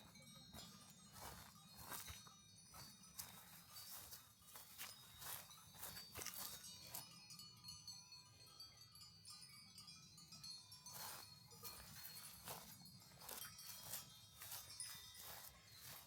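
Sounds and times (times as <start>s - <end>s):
soft footsteps: 0.0s - 7.0s, 11.0s - 16.0s
small bells ringing: 0.0s - 16.0s.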